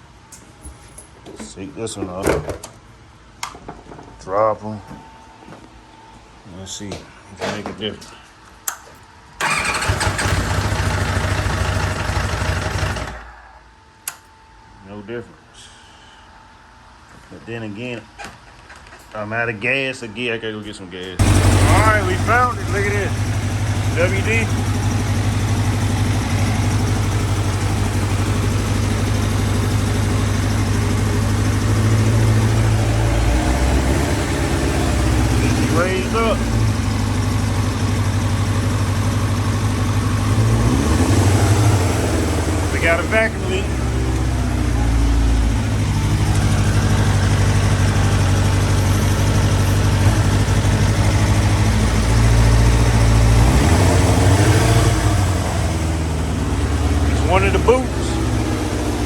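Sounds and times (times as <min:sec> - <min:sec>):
motorcycle engine idling: 0:09.4 - 0:13.2, 0:21.2 - 0:59.0.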